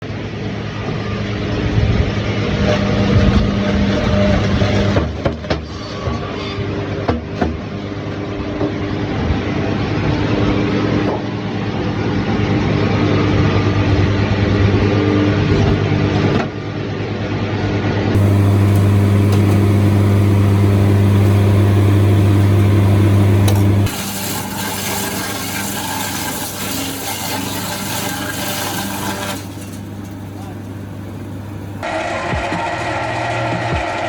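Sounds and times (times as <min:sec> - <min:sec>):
heavy machinery humming: 0:18.2 - 0:31.9.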